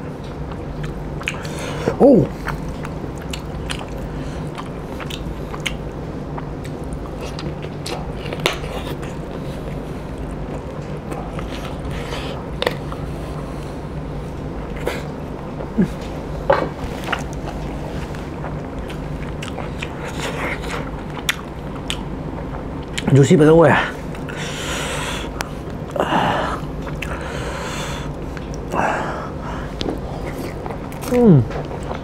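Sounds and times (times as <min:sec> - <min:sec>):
steady low hum: 0:00.0 - 0:32.0
person biting and chewing: 0:02.3 - 0:09.8, 0:18.4 - 0:23.1, 0:29.8 - 0:32.0.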